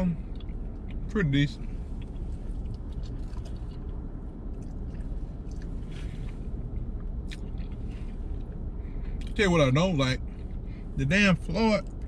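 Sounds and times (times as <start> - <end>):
steady low hum: 0.0 - 12.0
man chewing: 1.8 - 9.4.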